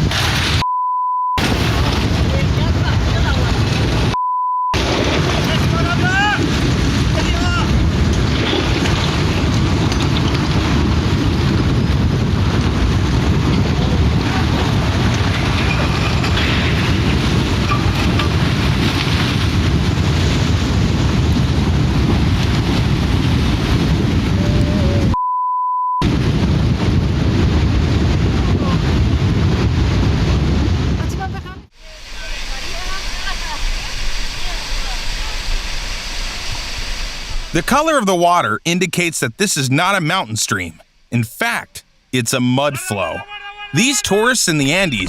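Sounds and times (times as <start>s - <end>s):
censor bleep: 0.6s - 1.4s, 4.2s - 4.8s, 25.1s - 26.0s
storm wind and water rushing: 1.4s - 4.2s, 4.8s - 25.2s, 26.0s - 38.0s
wind rumble on microphone: 1.4s - 4.2s, 4.8s - 25.2s, 26.0s - 37.5s.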